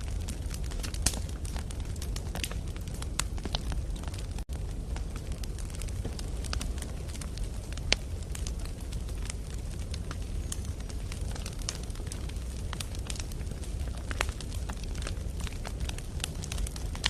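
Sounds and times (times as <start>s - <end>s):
campfire burning with low rumble: 0.0s - 17.0s
fire crackles and pops: 0.0s - 17.0s.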